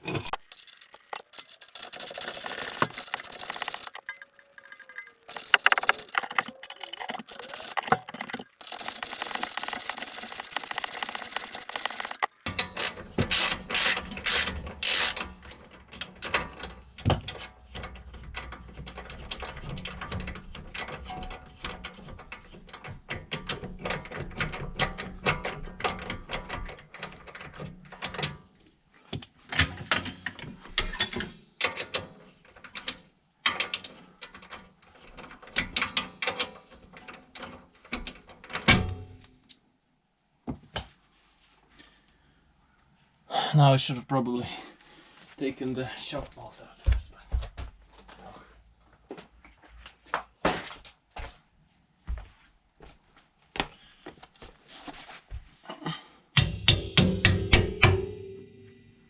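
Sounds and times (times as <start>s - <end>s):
metal tools knocking on bolts: 0.3s - 12.3s
ratchet wrench clicking: 0.3s - 12.5s, 13.3s - 15.2s.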